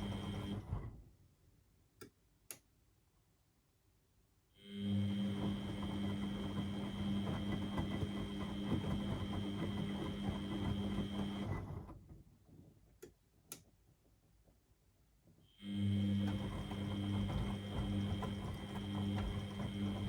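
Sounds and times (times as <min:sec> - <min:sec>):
washing machine motor whine: 0:00.0 - 0:01.0, 0:04.6 - 0:12.1, 0:15.6 - 0:20.0.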